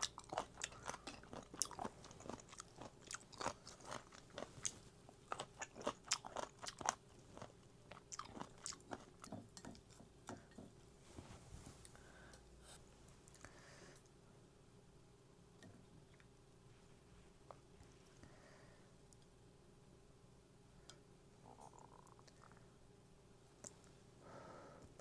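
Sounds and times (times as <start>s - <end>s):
person chewing food: 0.0s - 10.7s.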